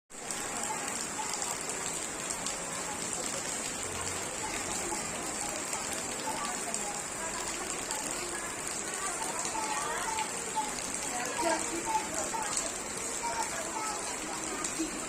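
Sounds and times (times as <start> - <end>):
raindrops ticking: 0.2 - 15.0
steady rain hiss: 0.2 - 15.0.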